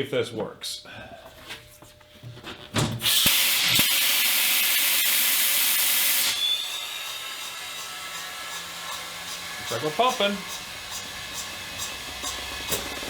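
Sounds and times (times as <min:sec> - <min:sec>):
compressed air hissing into tire: 0:03.0 - 0:07.9, 0:10.4 - 0:13.0.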